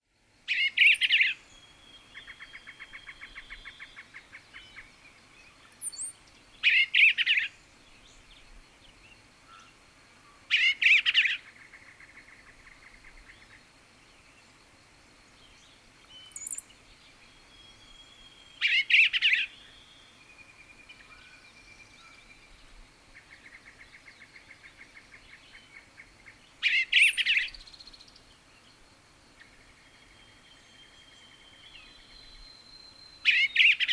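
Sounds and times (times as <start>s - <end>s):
songbird warbling: 0.5s - 7.6s, 10.3s - 13.6s, 16.1s - 16.8s, 17.5s - 20.1s, 23.2s - 28.1s, 33.2s - 33.9s.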